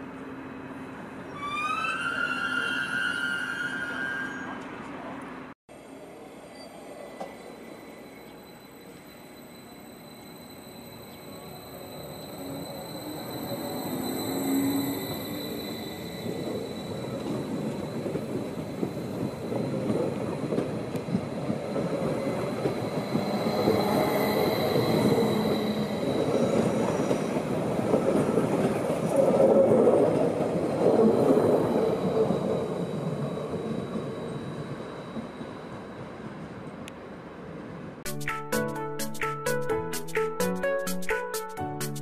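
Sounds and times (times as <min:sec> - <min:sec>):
high steady squeal: 0:06.5 - 0:19.8.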